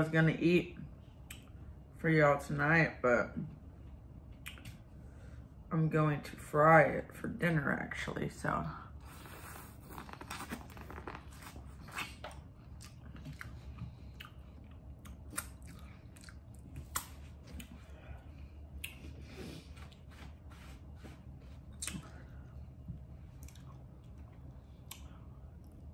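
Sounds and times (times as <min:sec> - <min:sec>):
person chewing corn on the cob: 0:09.2 - 0:17.8, 0:23.3 - 0:25.7.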